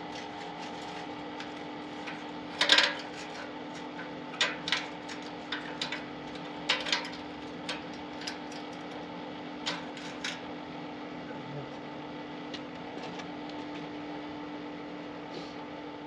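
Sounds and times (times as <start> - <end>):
steady hum: 0.0 - 16.0
tools clinking and tapping: 2.0 - 8.8.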